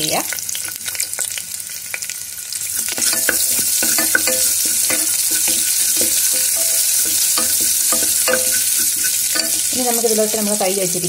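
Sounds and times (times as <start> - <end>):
spices sizzling in hot oil: 0.0 - 11.0
spoon scraping and clinking pot: 2.6 - 9.9.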